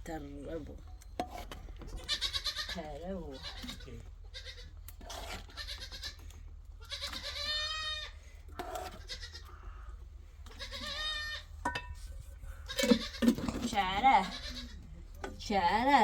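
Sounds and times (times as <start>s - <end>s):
goats bleating: 1.9s - 4.7s, 5.4s - 9.8s, 10.5s - 11.5s, 12.6s - 15.0s.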